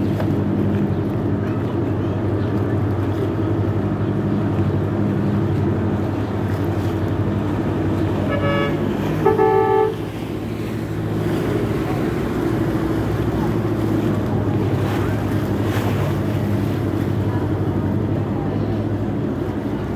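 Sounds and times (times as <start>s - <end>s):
boat engine running: 0.0s - 19.9s
boat horn toots: 7.7s - 10.4s.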